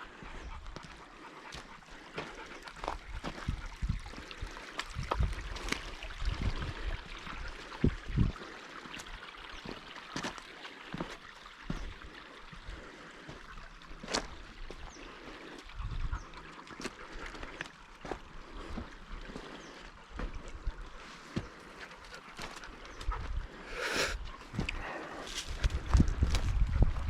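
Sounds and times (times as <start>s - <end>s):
creek running: 0.0s - 27.0s
footsteps on rocks: 0.8s - 4.2s, 14.0s - 14.8s, 16.8s - 23.4s, 24.5s - 27.0s.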